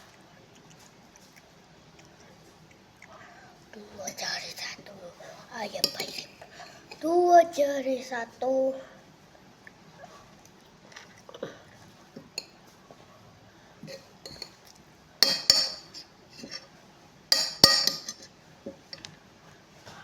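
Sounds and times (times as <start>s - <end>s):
utensils clinking on dishes: 15.2s - 16.7s, 17.3s - 18.3s.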